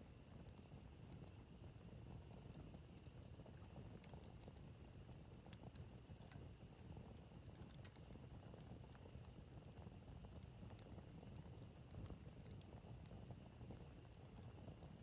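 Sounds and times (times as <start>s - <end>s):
low rumble of flame: 0.0s - 15.0s
wood crackling and popping: 0.3s - 15.0s.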